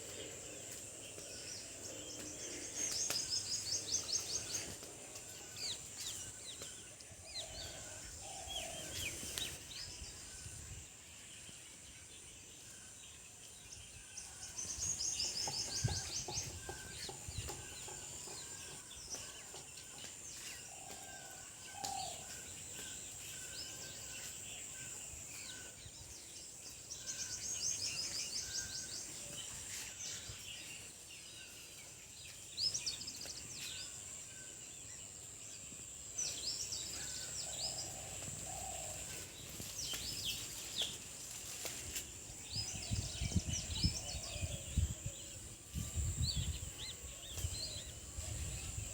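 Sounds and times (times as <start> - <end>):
steady high-pitched hiss: 0.0 - 48.9
chickens clucking and chirping: 14.8 - 20.6.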